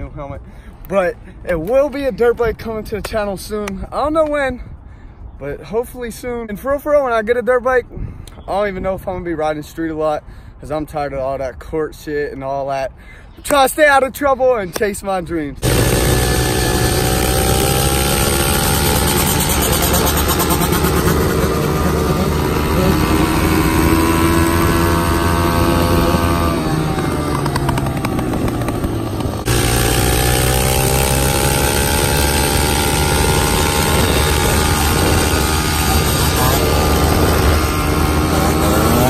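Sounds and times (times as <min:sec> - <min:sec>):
dirt bike engine revving: 0:15.6 - 0:39.0.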